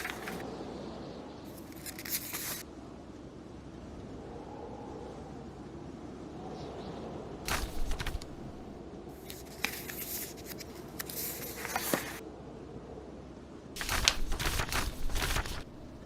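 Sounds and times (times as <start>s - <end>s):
book pages turning: 0.0s - 0.4s, 1.5s - 2.6s, 7.5s - 12.2s, 13.8s - 16.0s
blizzard wind: 0.0s - 16.0s.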